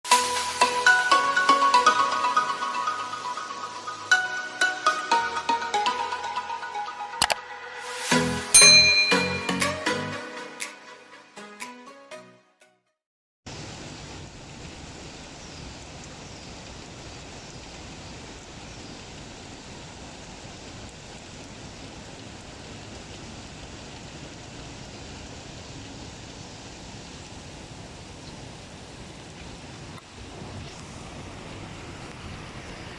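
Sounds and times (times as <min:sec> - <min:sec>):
heavy rain pouring: 0:00.0 - 0:08.6, 0:13.5 - 0:32.9.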